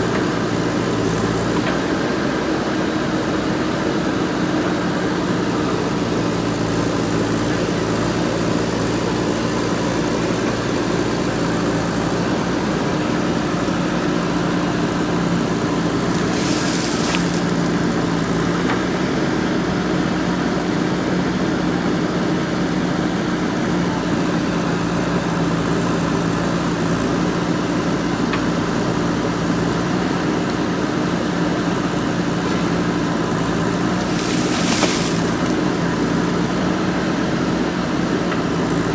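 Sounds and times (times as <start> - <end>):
diesel engine running: 0.0 - 19.9, 32.0 - 38.9
brief hiss: 16.1 - 18.0, 33.9 - 35.6.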